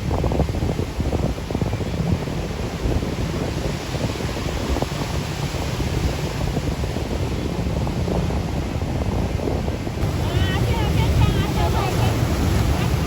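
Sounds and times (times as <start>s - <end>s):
wind rumbling on microphone: 0.0s - 13.0s
surf breaking: 10.0s - 13.0s.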